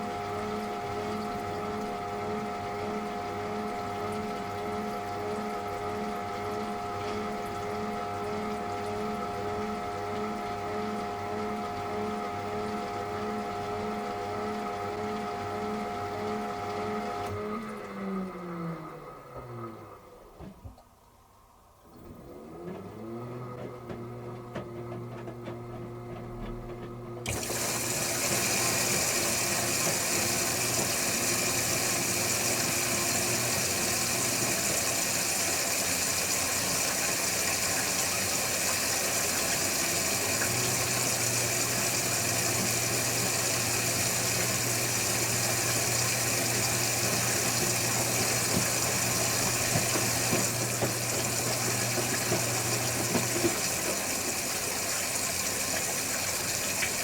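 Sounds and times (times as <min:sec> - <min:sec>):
water rushing through washing machine: 0:00.0 - 0:57.0.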